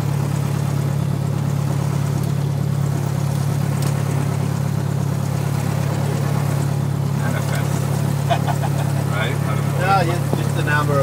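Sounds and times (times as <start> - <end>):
light airplane engine droning: 0.0 - 11.0.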